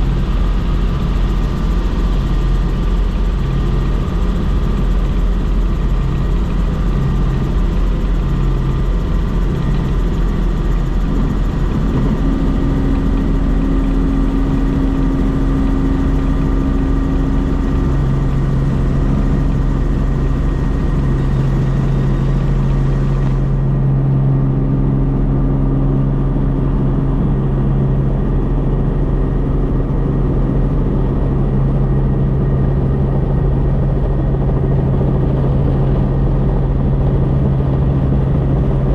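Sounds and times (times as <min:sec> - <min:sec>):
helicopter rotor and engine drone: 0:00.0 - 0:38.9.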